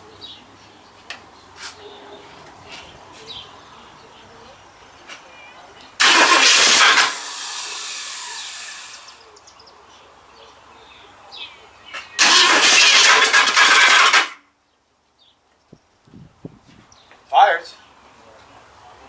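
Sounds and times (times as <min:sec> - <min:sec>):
car starter cranking: 0:06.0 - 0:09.2, 0:12.2 - 0:14.4.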